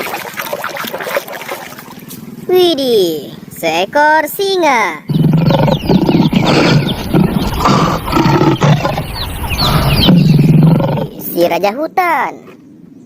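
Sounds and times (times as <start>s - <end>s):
lion roaring and grunting: 5.1s - 11.3s.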